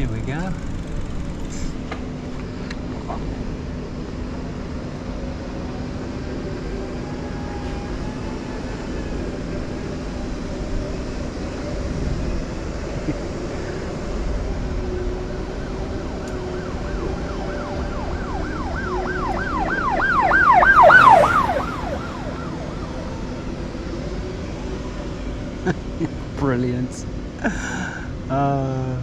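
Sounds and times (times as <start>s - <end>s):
siren yelping: 14.6s - 25.2s.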